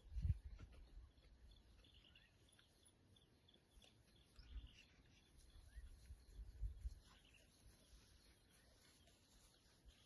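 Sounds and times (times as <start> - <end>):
distant bird chirps: 0.0 - 10.0.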